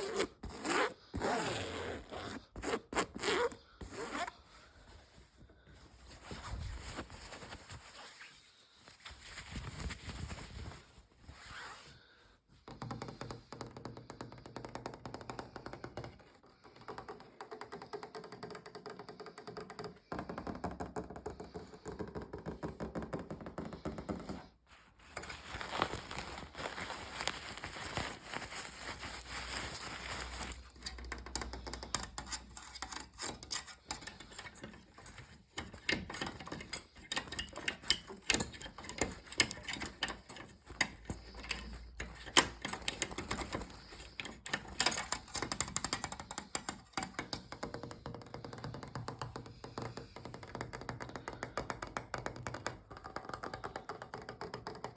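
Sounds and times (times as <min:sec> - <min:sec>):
fast tapping on objects: 0:29.9 - 0:54.9.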